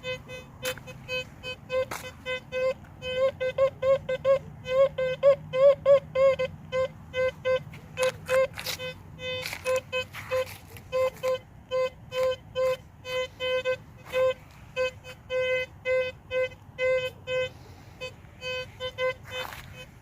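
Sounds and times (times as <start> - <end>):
metal detector beeping: 0.0 - 20.0.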